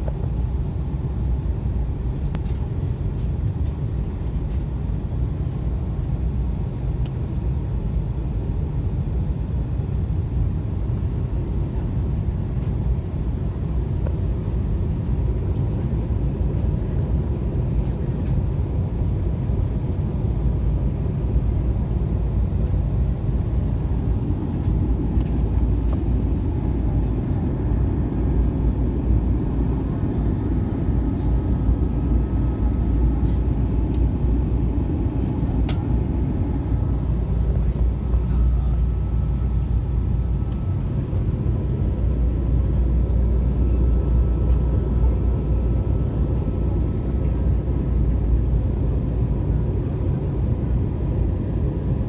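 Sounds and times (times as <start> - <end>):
airliner cabin engine roar: 0.0 - 52.0.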